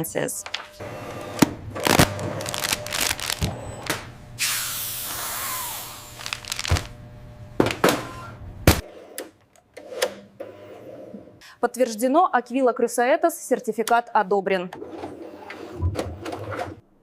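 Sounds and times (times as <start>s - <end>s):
hiss: 4.4s - 6.0s.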